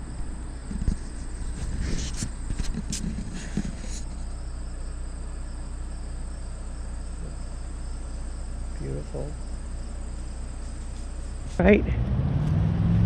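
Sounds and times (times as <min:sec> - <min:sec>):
knocks and rustles: 0:00.0 - 0:04.3
crickets trilling: 0:00.0 - 0:11.8
low steady rumble: 0:00.0 - 0:13.0.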